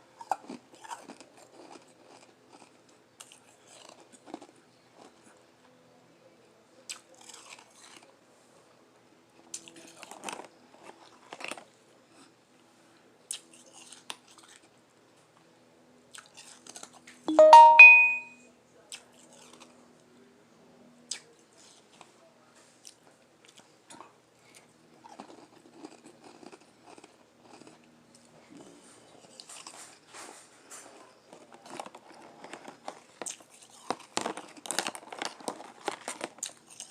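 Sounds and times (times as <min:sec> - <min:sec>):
chewing and crunching ice: 0:00.0 - 0:05.4, 0:06.8 - 0:08.2, 0:09.4 - 0:12.4, 0:13.3 - 0:14.9, 0:16.1 - 0:17.2, 0:18.9 - 0:19.8, 0:22.8 - 0:30.1, 0:30.7 - 0:36.9.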